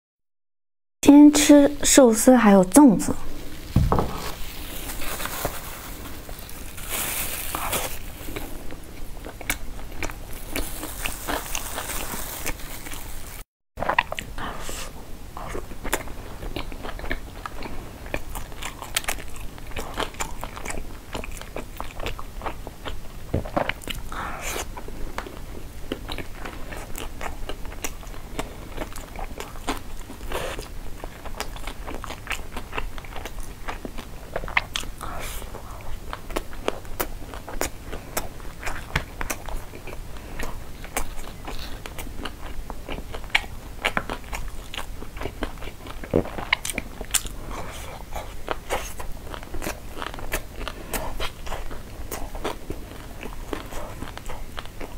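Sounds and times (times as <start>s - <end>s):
chewing crunches: 4.4s - 14.3s, 15.4s - 54.9s.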